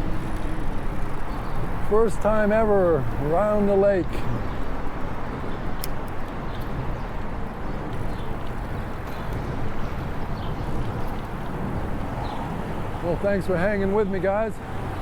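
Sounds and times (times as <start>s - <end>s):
wind noise on microphone: 0.0s - 14.0s
road noise: 0.0s - 15.0s
faint clicks: 5.8s - 7.3s.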